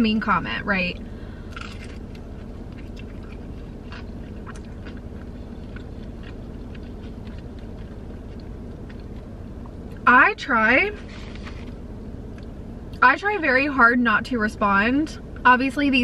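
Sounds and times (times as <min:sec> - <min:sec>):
steady low hum: 0:00.0 - 0:16.0
person chewing crunchy food: 0:01.2 - 0:10.0.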